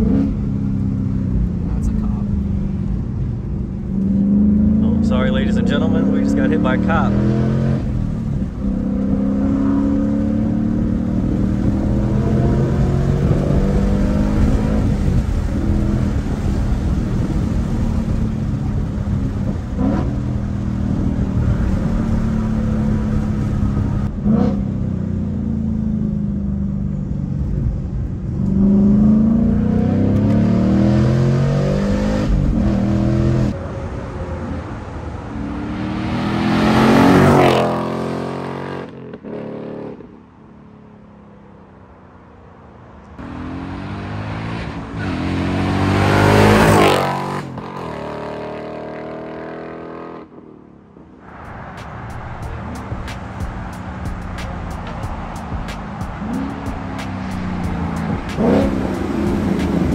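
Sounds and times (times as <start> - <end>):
car engine revving through gears: 3.8 - 24.8, 28.2 - 33.6, 35.3 - 40.0, 43.2 - 50.3, 52.1 - 59.9.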